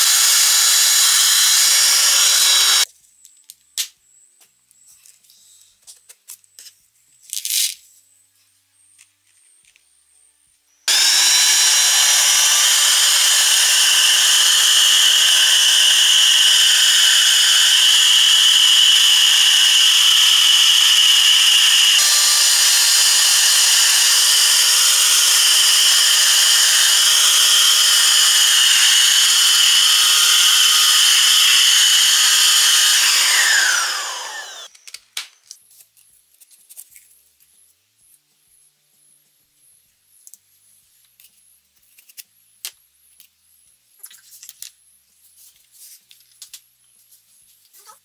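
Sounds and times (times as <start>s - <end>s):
motor switch: 0.0s - 2.8s, 10.9s - 34.7s
vacuum motor whining: 0.0s - 2.9s, 10.9s - 34.7s.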